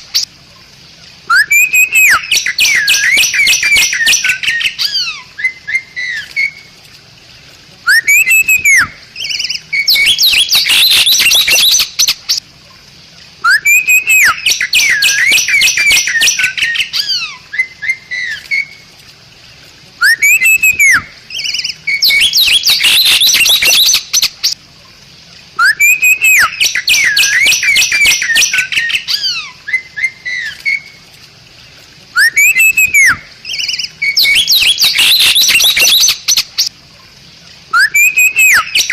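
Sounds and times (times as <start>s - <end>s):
bird whistling and chattering: 1.3s - 6.6s, 7.9s - 12.4s, 13.4s - 18.7s, 20.0s - 24.6s, 25.6s - 30.9s, 32.2s - 36.7s, 37.7s - 38.9s.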